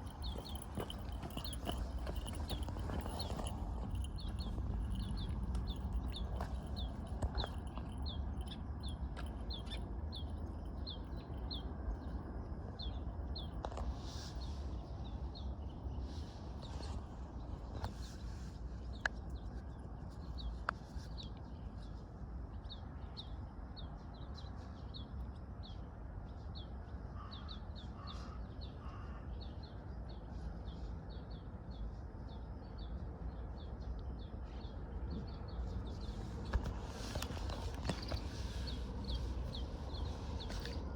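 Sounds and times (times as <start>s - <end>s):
small bird chirping: 0.0s - 11.7s
low background rumble: 0.0s - 13.5s.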